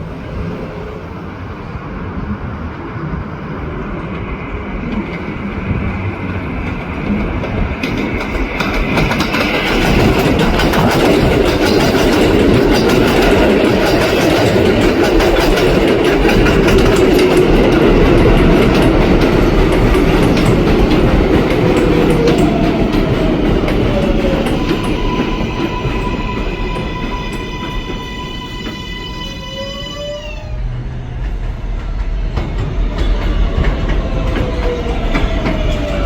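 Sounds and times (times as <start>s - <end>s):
train wheels clattering over rails: 4.1s - 29.2s, 30.6s - 36.0s.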